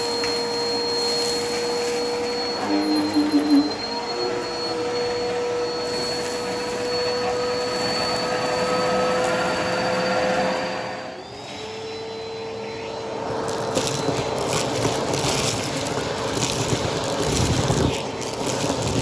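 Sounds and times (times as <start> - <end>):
vacuum cleaner motor whine: 0.0 - 19.0
debris crackling being sucked up: 13.3 - 19.0.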